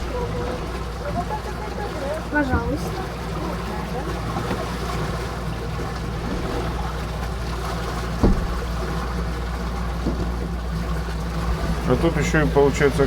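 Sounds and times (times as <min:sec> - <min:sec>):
boat motor running: 0:00.0 - 0:13.0
short thump: 0:08.2 - 0:08.7.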